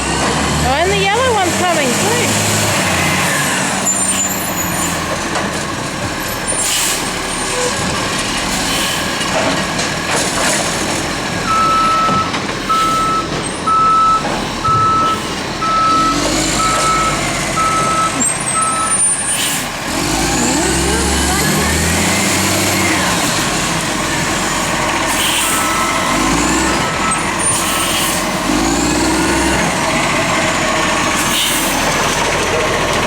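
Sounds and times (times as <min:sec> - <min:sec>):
garbage truck engine running: 0:00.0 - 0:33.0
reversing alarm beeping: 0:11.4 - 0:19.4, 0:25.4 - 0:28.0.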